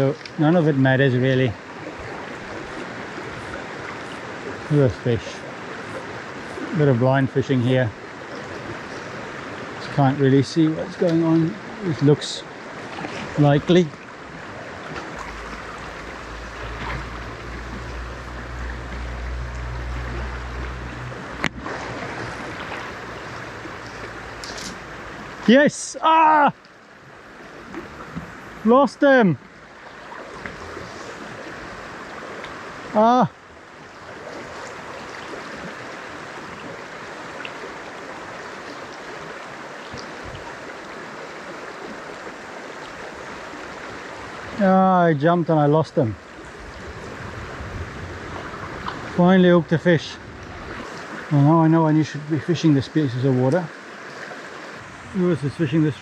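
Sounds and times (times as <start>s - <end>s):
stream running over stones: 0.0s - 56.0s
wind rumble on microphone: 39.9s - 40.6s, 46.3s - 49.2s, 50.1s - 51.3s.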